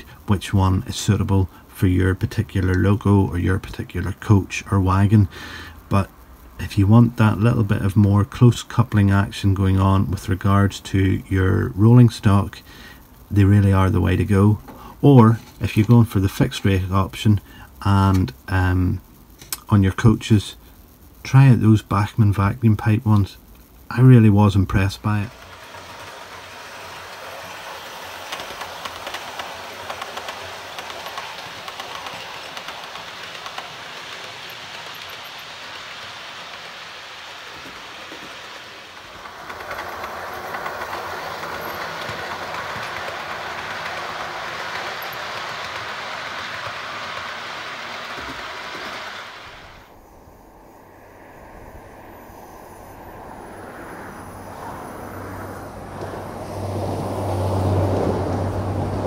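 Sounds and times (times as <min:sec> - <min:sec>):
train clickety-clack on rails: 0:24.7 - 0:49.8, 0:54.6 - 0:59.0.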